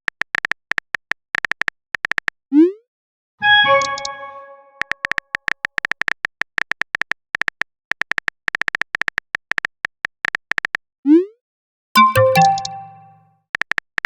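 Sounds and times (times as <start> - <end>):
notification chime: 3.4 - 4.8, 12.0 - 13.2
keyboard tap clicks: 12.0 - 13.2.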